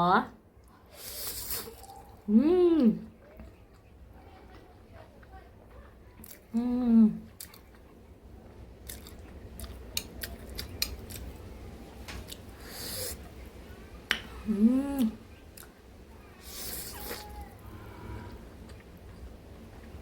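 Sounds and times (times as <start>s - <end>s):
noodle slurps: 1.0s - 2.0s, 16.4s - 17.4s
pleased mmm hum: 1.6s - 3.1s, 6.5s - 7.3s, 14.1s - 15.3s
wet chewing and mouth clicks: 7.2s - 13.5s, 15.0s - 15.8s.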